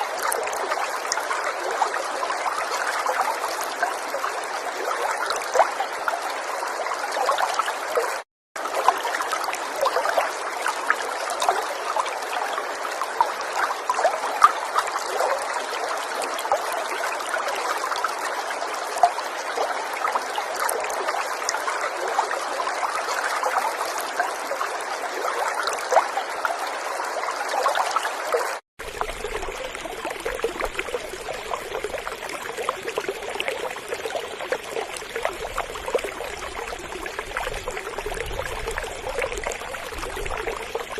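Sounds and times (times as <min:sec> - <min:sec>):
river water flowing: 0:00.0 - 0:40.9
water splashing: 0:27.7 - 0:40.9.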